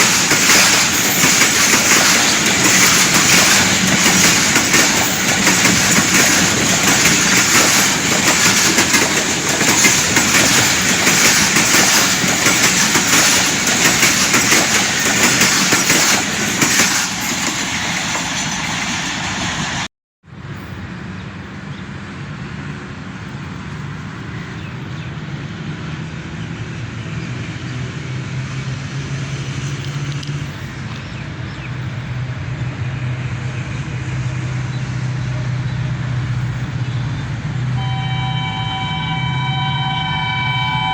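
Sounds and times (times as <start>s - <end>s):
train passing with rail clatter: 0.0s - 40.9s
low diesel engine drone: 31.0s - 40.9s.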